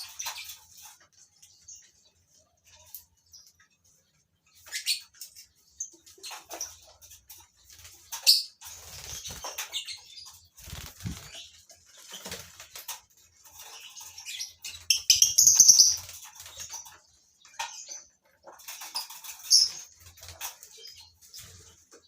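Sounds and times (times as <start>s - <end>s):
birds chirping: 0.0s - 22.0s
wings flapping: 8.6s - 9.8s, 10.6s - 13.0s.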